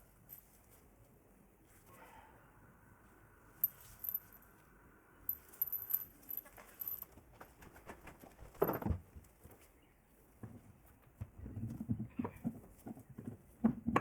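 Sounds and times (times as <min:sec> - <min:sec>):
small metal parts clinking: 0:03.6 - 0:04.6, 0:05.3 - 0:07.2.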